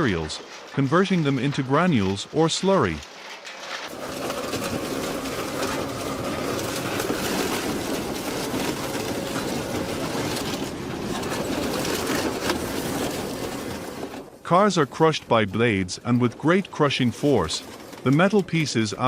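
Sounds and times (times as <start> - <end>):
shredder grinding scrap metal: 3.8 - 14.2.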